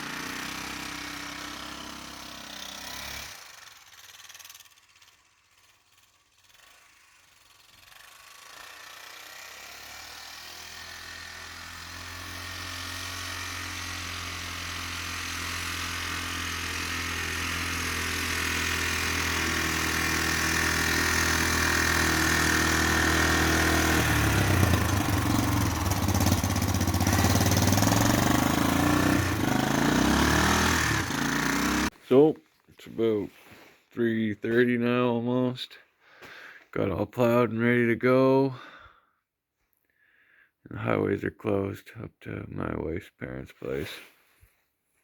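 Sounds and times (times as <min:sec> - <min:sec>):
vehicle engine approaching: 0:10.7 - 0:31.9.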